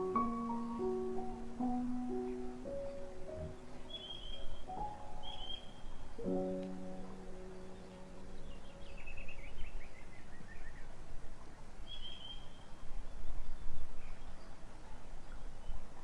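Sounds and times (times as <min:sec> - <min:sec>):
bird chirping: 0:00.0 - 0:10.9, 0:11.9 - 0:14.5
outdoor background noise: 0:00.0 - 0:16.0
bird whistle: 0:03.9 - 0:05.8.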